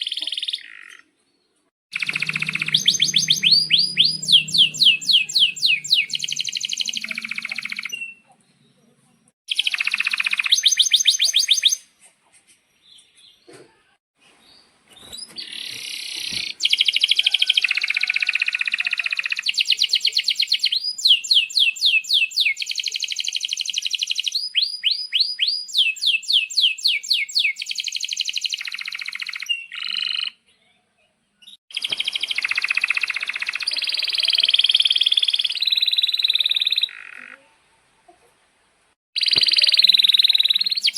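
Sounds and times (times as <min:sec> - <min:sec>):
canary singing trills: 0:01.9 - 0:12.1, 0:14.6 - 0:37.6, 0:39.2 - 0:40.9.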